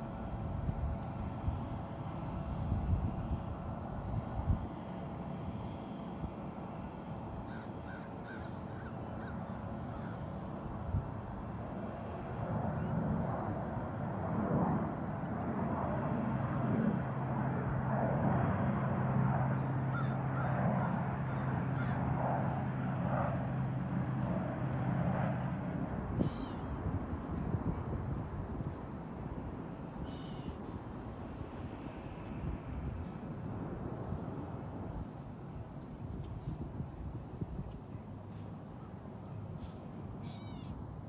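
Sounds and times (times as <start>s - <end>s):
jet aircraft flying over: 0.0s - 41.0s
birds calling: 7.1s - 10.2s, 19.9s - 22.1s, 26.2s - 26.7s, 30.0s - 30.6s, 39.6s - 40.8s
harsh crow-like calls: 7.5s - 10.3s, 19.6s - 22.1s, 26.2s - 26.7s, 30.0s - 30.6s, 40.2s - 40.8s.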